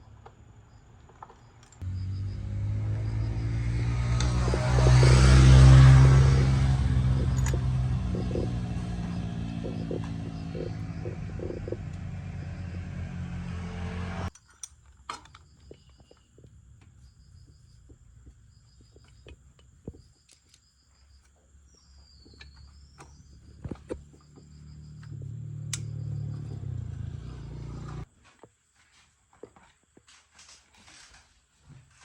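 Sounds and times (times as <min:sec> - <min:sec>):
high chirping: 0:01.8 - 0:14.3
motorbike engine running: 0:01.8 - 0:14.3, 0:22.5 - 0:28.0
sharp clicks: 0:04.1 - 0:12.9, 0:25.0 - 0:26.0.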